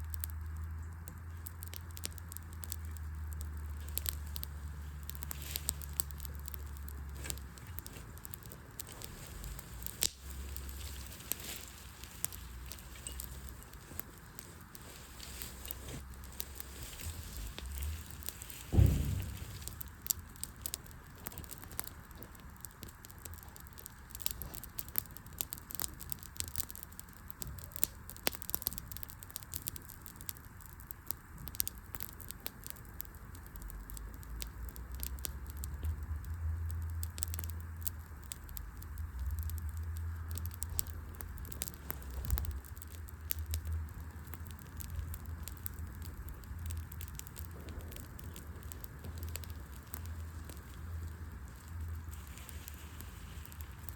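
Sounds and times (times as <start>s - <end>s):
wood fire crackling: 0.0s - 53.9s
low rumble: 0.4s - 21.6s.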